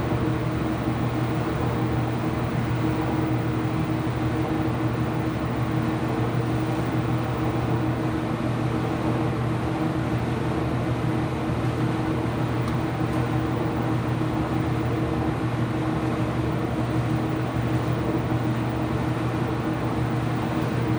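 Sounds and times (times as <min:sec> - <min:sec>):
laundry machines humming: 0:10.7 - 0:20.9.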